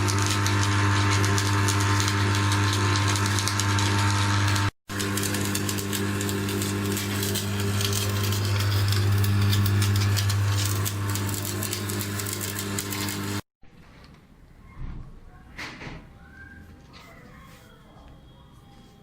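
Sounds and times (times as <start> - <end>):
workshop machine humming: 0.0 - 13.5.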